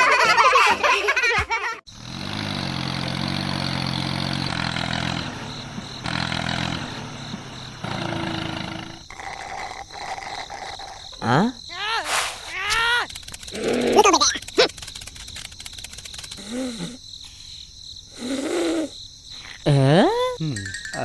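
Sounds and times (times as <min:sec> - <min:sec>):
small engine droning: 0:01.9 - 0:09.1.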